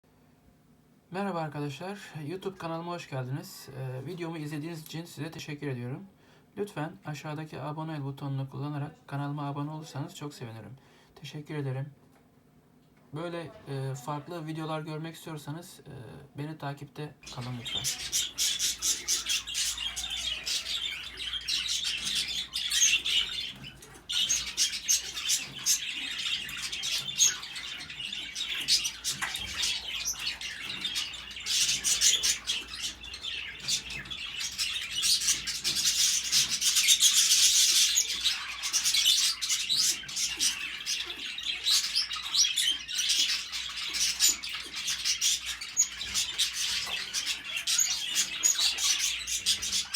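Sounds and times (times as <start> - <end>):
parrots chirping and clicking: 17.2 - 49.9.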